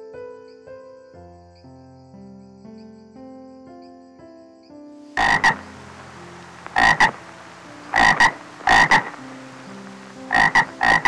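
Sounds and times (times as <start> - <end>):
soft background music: 0.0 - 11.0
animal rasping calls: 5.2 - 5.8, 6.6 - 7.3, 7.9 - 9.2, 10.3 - 11.0.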